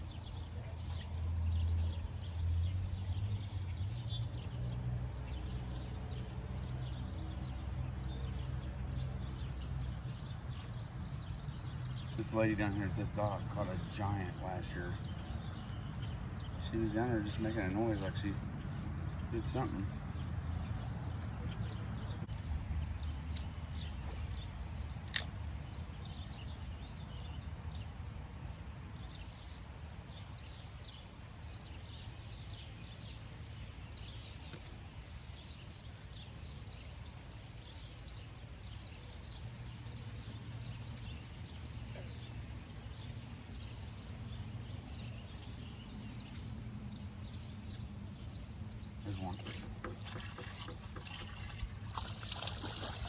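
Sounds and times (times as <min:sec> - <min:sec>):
small birds chirping: 0:00.0 - 0:53.0
sharp click: 0:23.3 - 0:25.4.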